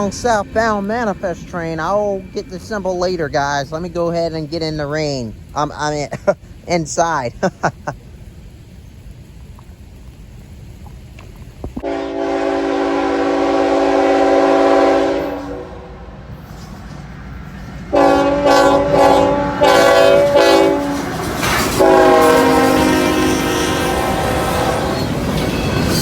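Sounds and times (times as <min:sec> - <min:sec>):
locomotive air horn chord: 0:11.8 - 0:16.1, 0:17.9 - 0:21.0, 0:21.8 - 0:25.1.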